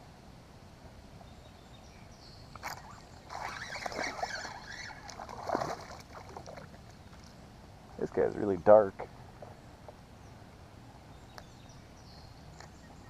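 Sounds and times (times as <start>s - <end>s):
fish splashing and rattling: 2.6s - 7.4s.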